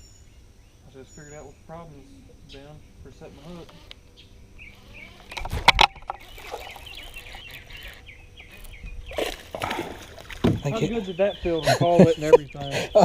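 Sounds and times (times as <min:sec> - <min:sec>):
water splash: 0:09.1 - 0:10.8.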